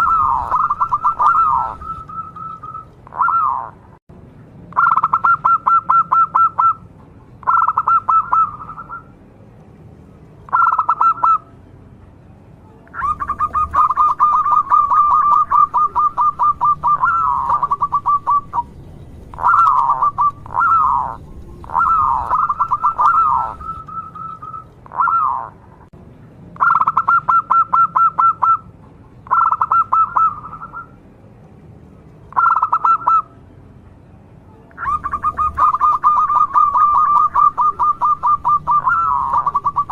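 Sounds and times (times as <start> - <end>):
dove cooing in trills: 0.0 - 3.8, 4.8 - 6.8, 7.4 - 9.1, 10.5 - 11.5, 12.9 - 25.6, 26.6 - 28.6, 29.3 - 30.9, 32.3 - 33.3, 34.8 - 39.9.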